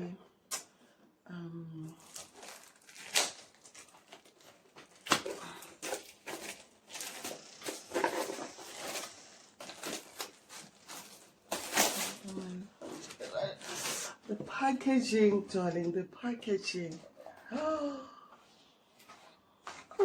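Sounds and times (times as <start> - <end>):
packaging rustling and tapping: 2.1 - 12.2.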